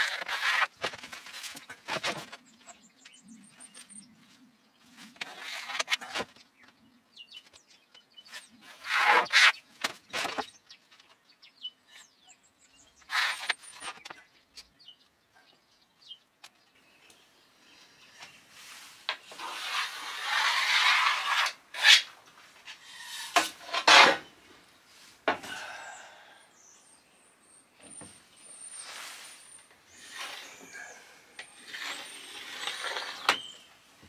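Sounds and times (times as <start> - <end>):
spirit level sliding on plywood: 18.6 - 22.1, 28.8 - 33.6.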